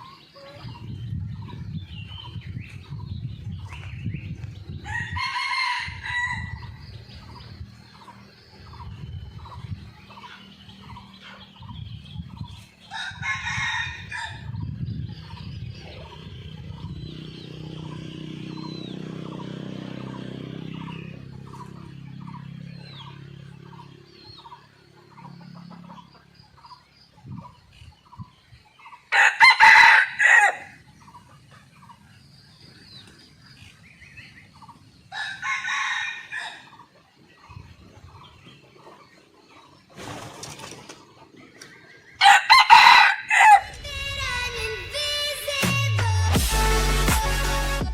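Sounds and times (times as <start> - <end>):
rooster crowing: 4.8 - 6.8, 12.9 - 14.5, 29.1 - 30.8, 35.1 - 36.8, 42.2 - 43.8.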